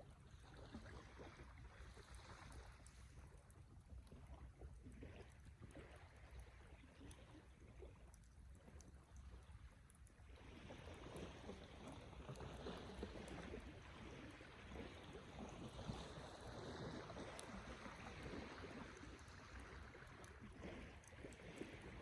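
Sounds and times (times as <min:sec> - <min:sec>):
small fire pops: 0:11.0 - 0:22.0.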